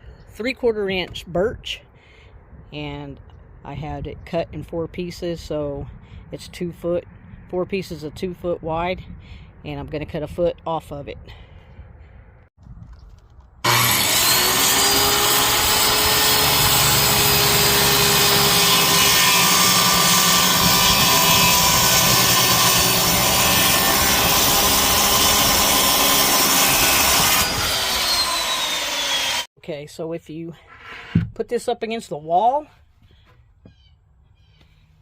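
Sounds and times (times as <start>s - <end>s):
electric saw cutting plywood: 13.6s - 29.5s.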